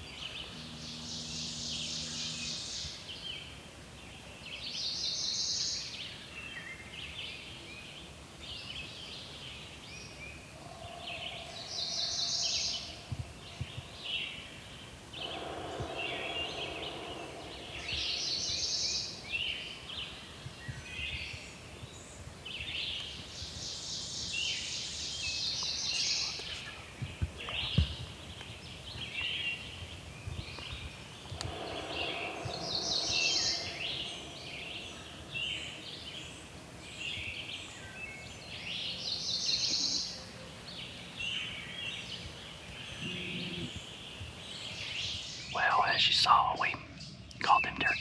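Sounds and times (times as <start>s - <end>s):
songbirds singing: 0.0s - 48.0s
distant turkey gobbling: 15.2s - 19.0s, 31.4s - 35.7s.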